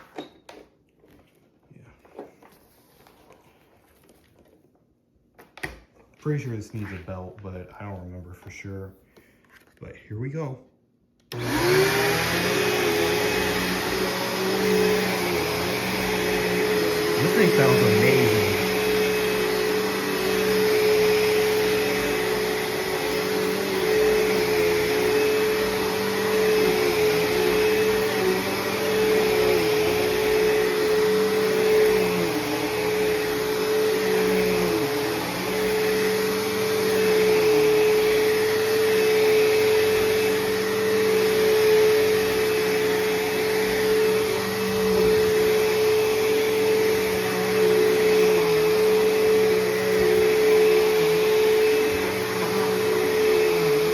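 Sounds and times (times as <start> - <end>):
vacuum cleaner motor whine: 11.2 - 53.9.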